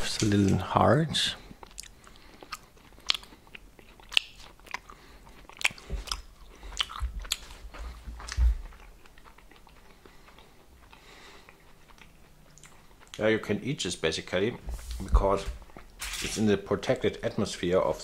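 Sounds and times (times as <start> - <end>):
chewing hard sausage snack: 1.4 - 14.6.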